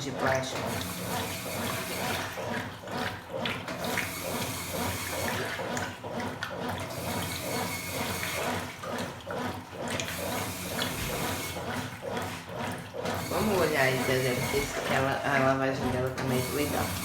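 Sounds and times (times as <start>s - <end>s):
washing machine water sloshing: 0.0s - 17.0s.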